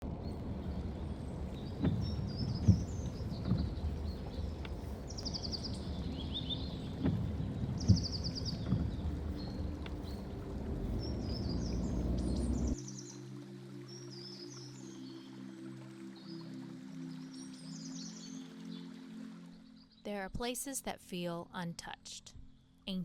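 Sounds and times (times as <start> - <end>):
steady low rumble: 0.0 - 12.8
forest birds singing: 0.2 - 20.1
dull footsteps: 1.5 - 11.2.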